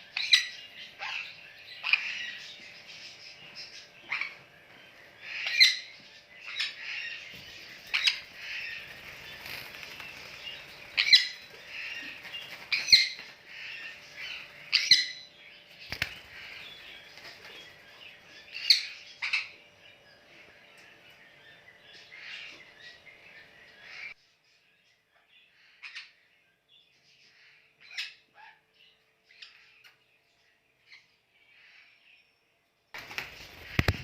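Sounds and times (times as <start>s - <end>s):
parrots chirping: 0.0s - 19.7s
parrots squawking: 0.2s - 2.5s, 4.0s - 4.4s, 5.2s - 15.3s.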